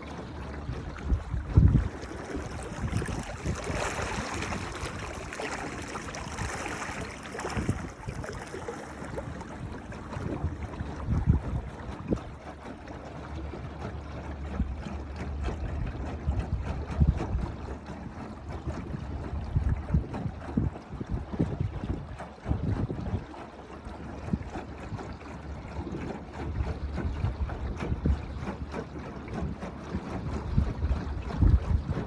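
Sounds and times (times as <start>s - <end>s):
water splashing along boat hull: 0.0s - 32.0s
low rumbling buffets: 0.4s - 12.2s.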